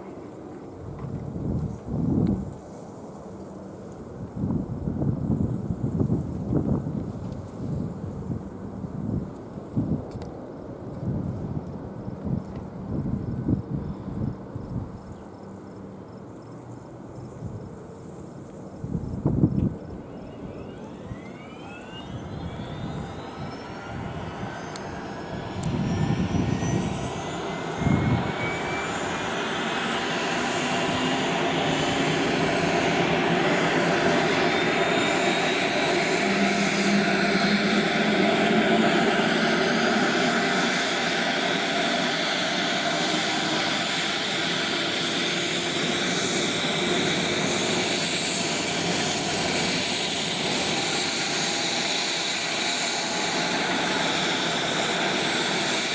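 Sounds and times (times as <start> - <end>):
helicopter turbine whine: 0.0 - 11.4, 18.3 - 55.9
helicopter rotor noise: 18.9 - 55.9.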